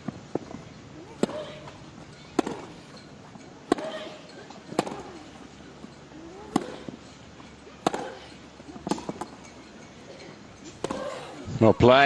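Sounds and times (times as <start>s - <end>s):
tennis ball struck by rackets: 0.3s - 3.0s, 3.6s - 5.4s, 6.4s - 7.1s, 7.8s - 9.4s, 10.7s - 11.4s.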